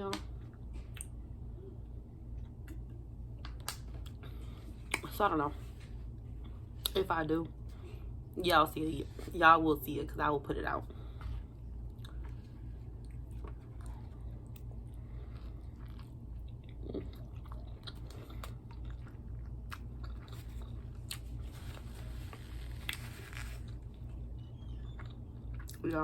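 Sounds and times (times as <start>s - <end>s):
steady low hum: 0.0s - 26.0s
chewing and crunching: 11.0s - 26.0s.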